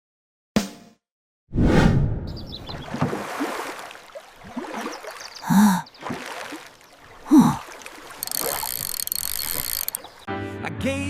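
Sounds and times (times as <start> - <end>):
gasp-like vocal sounds: 5.4 - 5.9, 7.2 - 7.7.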